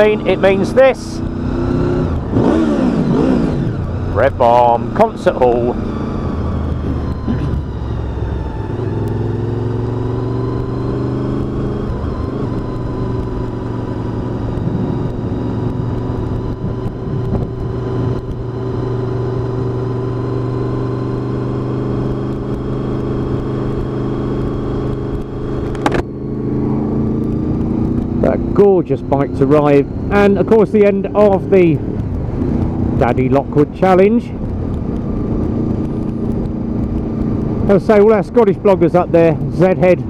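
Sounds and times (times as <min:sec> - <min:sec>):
motorcycle engine accelerating: 0:00.0 - 0:40.0.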